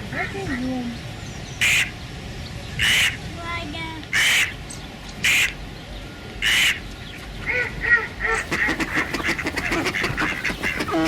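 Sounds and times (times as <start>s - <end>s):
ducks quacking: 1.6s - 2.0s, 2.8s - 3.2s, 4.1s - 4.6s, 5.2s - 5.6s, 6.4s - 6.8s, 7.4s - 11.0s.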